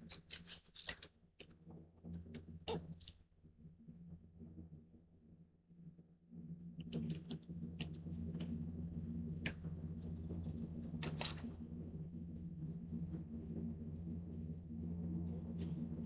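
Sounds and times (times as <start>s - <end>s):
paper and tape crinkling: 0.0s - 1.1s.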